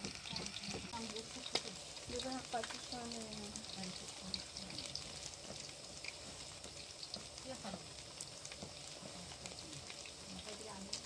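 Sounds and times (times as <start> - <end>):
meat patties sizzling in oil: 0.0 - 11.0.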